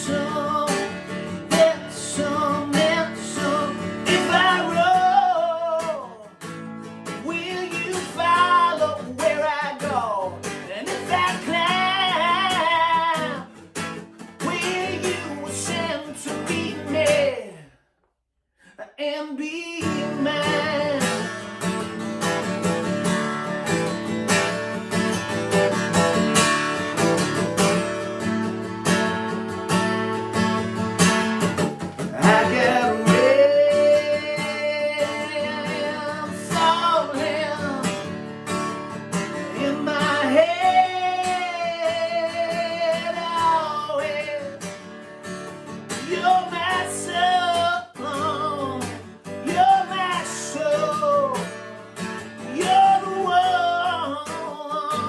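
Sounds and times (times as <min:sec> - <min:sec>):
man singing: 0:00.0 - 0:06.4, 0:07.1 - 0:17.8, 0:18.6 - 0:22.0, 0:32.0 - 0:38.2, 0:39.3 - 0:44.8, 0:45.9 - 0:55.0
guitar strumming: 0:00.0 - 0:17.5, 0:19.9 - 0:55.0.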